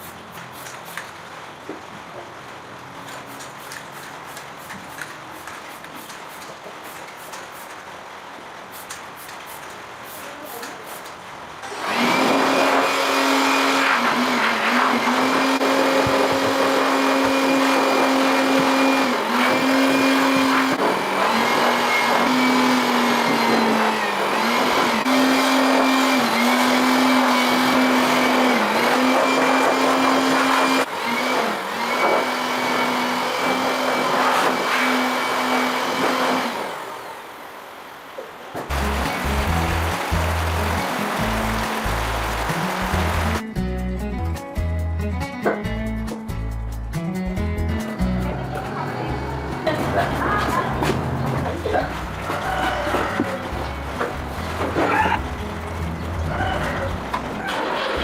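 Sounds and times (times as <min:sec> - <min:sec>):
electric power tool running: 0:11.6 - 0:37.1, 0:38.7 - 0:43.4.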